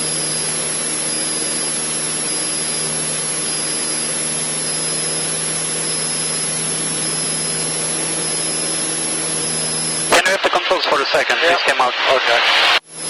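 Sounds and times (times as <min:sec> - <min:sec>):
aircraft engine drone in cabin: 0:00.0 - 0:13.0
thin high whine: 0:10.1 - 0:12.8.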